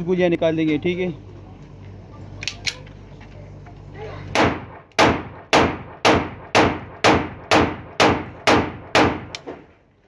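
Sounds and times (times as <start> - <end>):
pistol shots echoing: 4.4 - 9.4.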